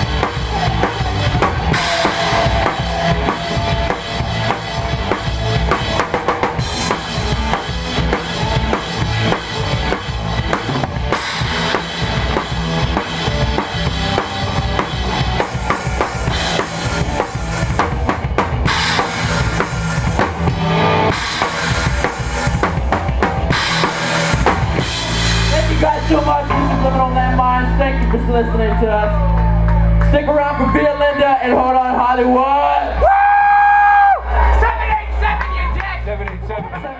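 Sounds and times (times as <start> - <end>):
live rock band playing: 0.0 - 33.0.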